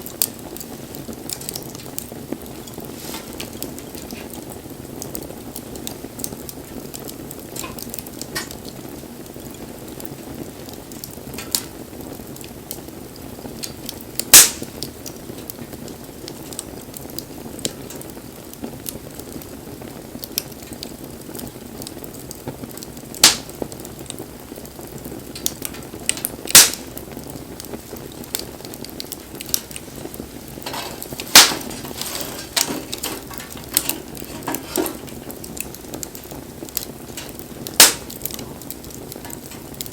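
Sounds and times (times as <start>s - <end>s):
fire crackling: 0.0s - 39.9s
rush of flame: 0.0s - 39.9s
loud sharp pops: 14.2s - 15.0s, 23.2s - 23.6s, 25.4s - 27.0s, 30.6s - 39.9s.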